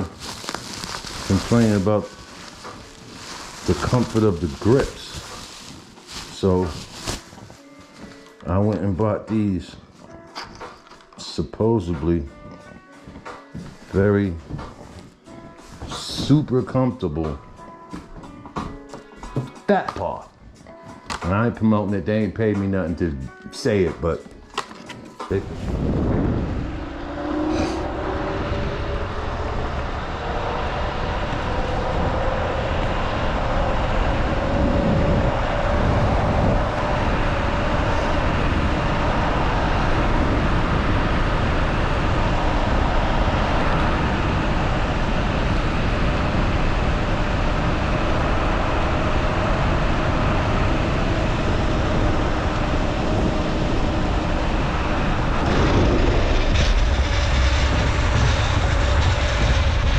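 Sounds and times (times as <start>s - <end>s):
wind and road noise: 0.0s - 59.9s
electric scooter motor whine: 25.4s - 59.9s.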